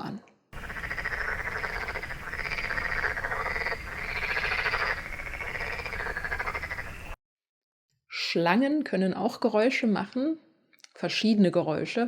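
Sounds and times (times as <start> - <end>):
frogs croaking: 0.6 - 7.2.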